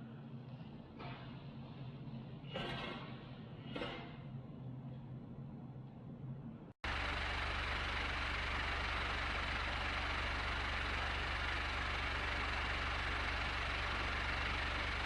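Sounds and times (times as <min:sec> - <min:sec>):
electric fan running: 0:06.8 - 0:15.0.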